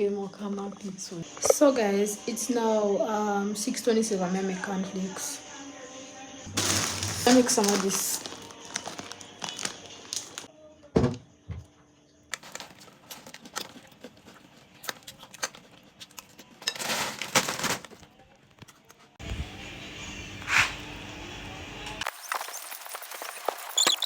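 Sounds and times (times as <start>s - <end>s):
cereal bag clicks and crinkling: 6.5s - 10.5s, 12.3s - 18.9s
cereal rustling pour: 6.5s - 10.5s.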